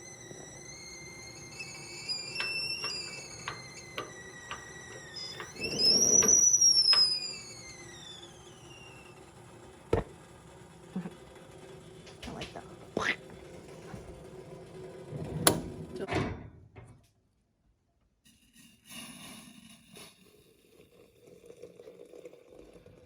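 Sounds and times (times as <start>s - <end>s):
high whistling tone: 0.0s - 9.2s.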